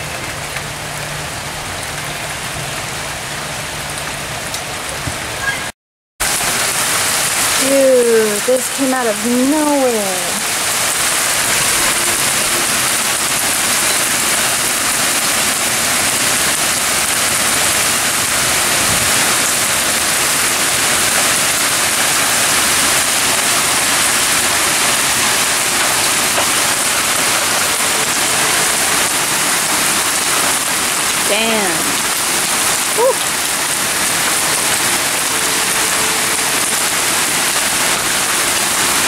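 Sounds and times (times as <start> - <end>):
heavy rain on ground: 0.0 - 39.0.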